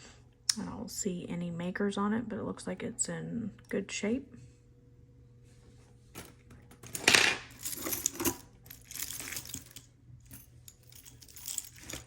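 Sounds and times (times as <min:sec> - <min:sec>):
metal jewelry clinking: 0:06.2 - 0:12.0.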